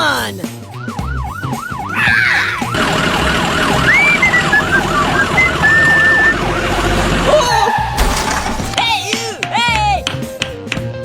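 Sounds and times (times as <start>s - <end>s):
siren in fast yelp: 0.8s - 7.7s.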